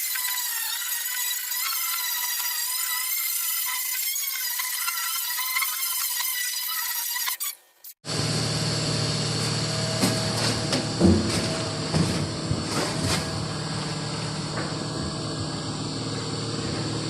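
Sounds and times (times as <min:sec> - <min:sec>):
workshop machine humming: 0:08.0 - 0:17.0.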